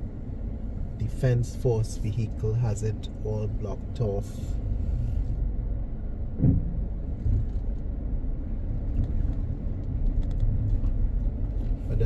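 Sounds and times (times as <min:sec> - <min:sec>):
car road and engine rumble: 0:00.0 - 0:12.0
thump: 0:06.4 - 0:07.5.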